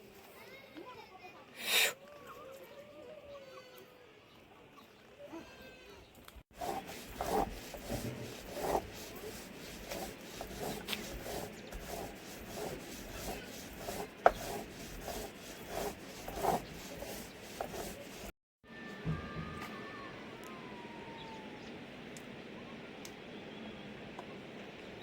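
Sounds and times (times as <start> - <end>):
rubbing and scraping strokes: 6.5 - 18.4.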